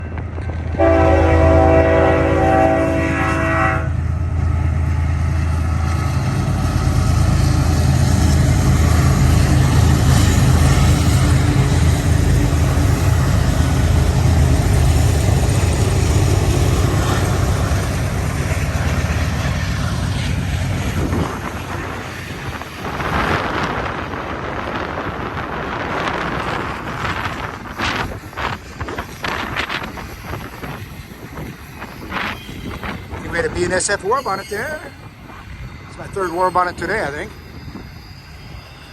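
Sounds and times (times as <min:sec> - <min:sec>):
rumble of passing railcars: 0:00.0 - 0:38.9
locomotive horn blast: 0:00.7 - 0:04.0
wind on microphone: 0:20.5 - 0:33.5.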